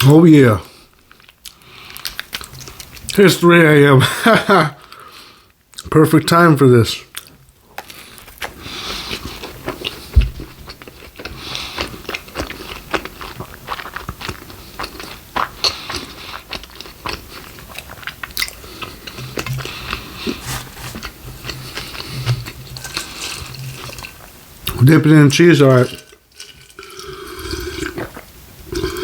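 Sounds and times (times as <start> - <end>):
person chewing crunchy food: 1.0 - 3.2, 7.1 - 24.3, 26.4 - 29.0.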